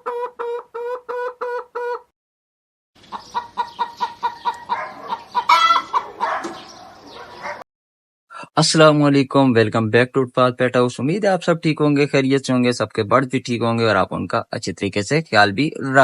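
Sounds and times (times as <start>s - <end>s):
chickens clucking: 0.0s - 2.1s, 3.0s - 7.6s.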